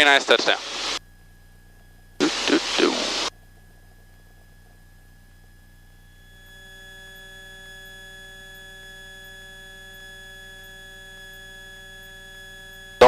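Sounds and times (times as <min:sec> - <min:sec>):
steady electrical hum: 0:00.0 - 0:08.0.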